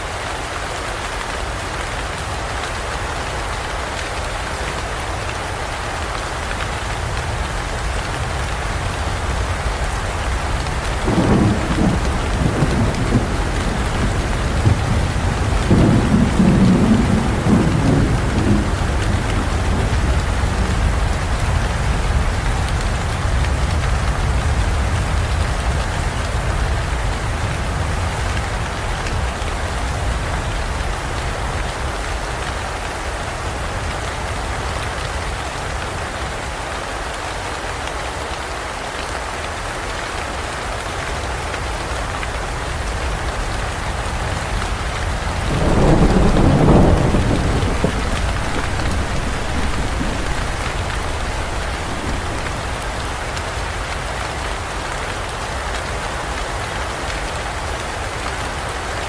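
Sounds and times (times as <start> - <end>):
heavy rain downpour: 0.0 - 59.0
thunder rolling: 10.6 - 21.3, 45.0 - 53.4.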